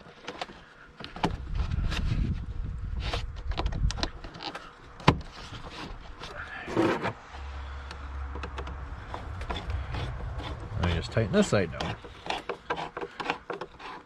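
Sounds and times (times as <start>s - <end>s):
low steady rumble: 7.2s - 12.7s
scraping rustle: 8.5s - 14.0s.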